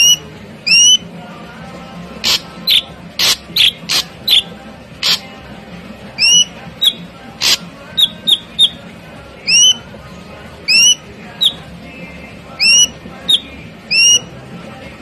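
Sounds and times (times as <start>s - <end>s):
bird sharp chips: 2.2s - 5.2s
bird whistling upward notes: 6.2s - 8.8s, 9.5s - 9.8s.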